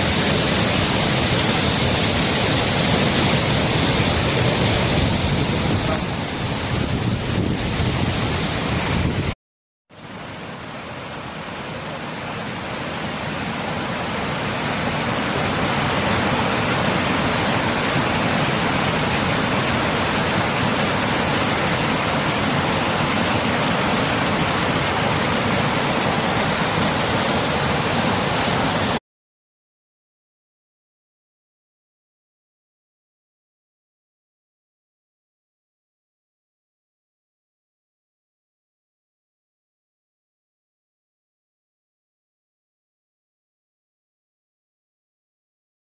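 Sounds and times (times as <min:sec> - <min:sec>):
water rushing over boulders: 0:00.0 - 0:09.4, 0:10.0 - 0:29.0.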